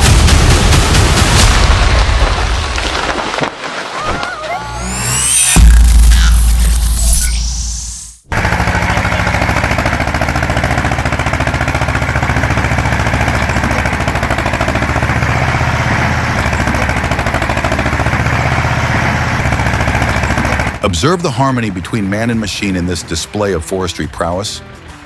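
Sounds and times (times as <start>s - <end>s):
tractor diesel engine knocking: 8.3s - 20.8s.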